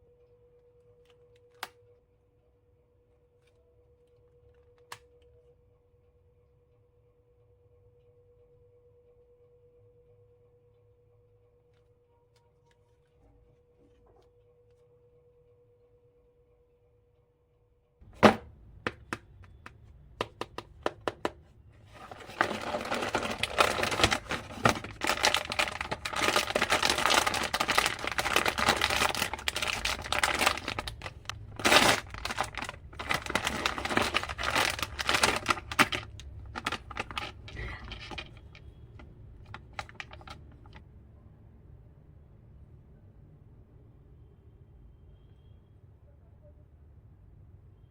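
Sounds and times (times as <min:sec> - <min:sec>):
wrapping crinkling and tearing: 0:21.8 - 0:38.6, 0:39.4 - 0:40.8.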